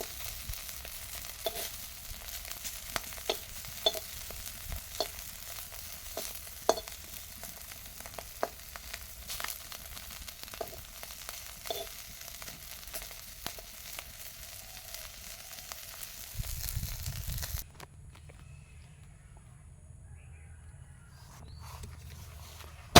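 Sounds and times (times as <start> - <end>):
fish sizzling in hot oil: 0.0 - 17.6
utensil clinking in pan: 6.1 - 7.1, 11.6 - 12.0.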